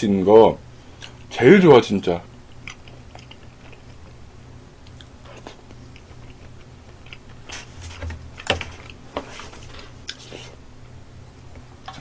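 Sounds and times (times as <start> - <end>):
person chewing with wet mouth sounds: 2.5 - 4.2, 4.8 - 7.8.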